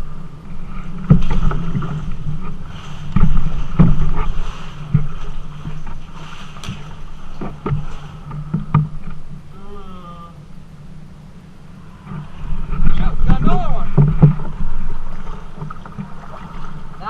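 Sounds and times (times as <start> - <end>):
river water rumbling: 0.0 - 17.0
knocks against kayak hull: 12.7 - 16.2.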